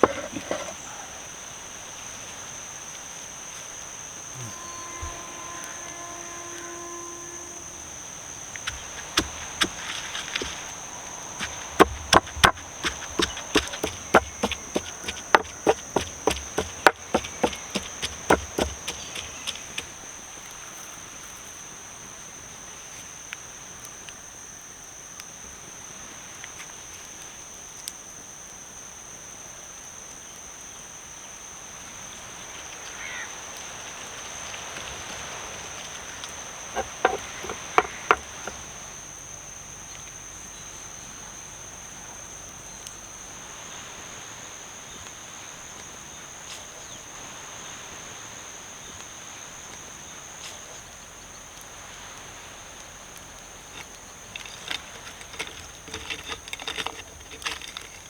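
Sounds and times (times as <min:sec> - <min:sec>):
high insect drone: 0:00.0 - 0:26.3, 0:28.2 - 0:58.0
knife chopping on wooden board: 0:08.7 - 0:10.6, 0:11.4 - 0:19.9, 0:36.8 - 0:38.5.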